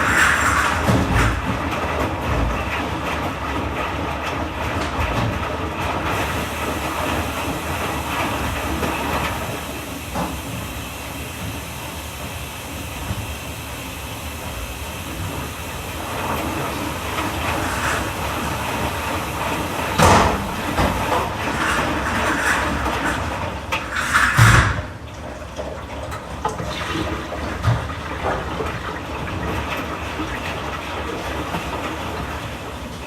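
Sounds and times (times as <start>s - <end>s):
hiss: 0.0s - 1.4s, 6.1s - 24.9s
washing machine running: 0.0s - 33.0s.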